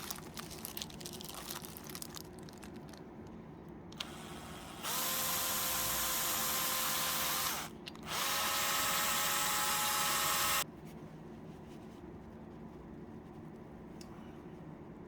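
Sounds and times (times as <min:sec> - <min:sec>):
electric drill motor whining: 0:04.0 - 0:10.6.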